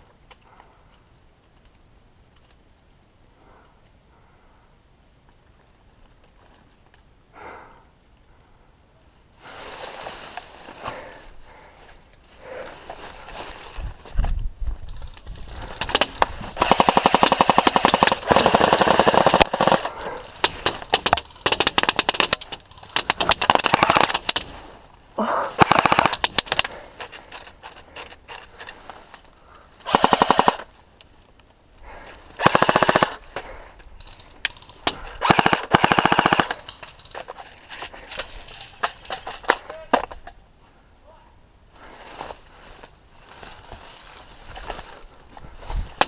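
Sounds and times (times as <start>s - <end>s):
airsoft guns firing bursts: 15.8s - 24.5s, 25.6s - 26.7s, 29.8s - 30.7s, 32.4s - 33.2s, 35.2s - 36.7s.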